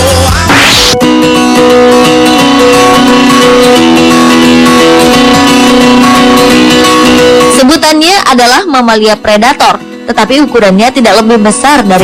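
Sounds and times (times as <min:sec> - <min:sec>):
plucked guitar music: 0:00.0 - 0:12.0
rising whoosh: 0:00.4 - 0:01.0.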